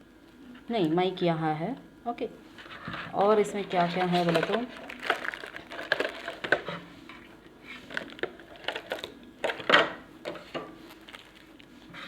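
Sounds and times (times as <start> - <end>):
packaging rustling: 3.2 - 6.7, 7.7 - 9.7, 10.8 - 11.7
hands rummaging through box: 3.6 - 6.6.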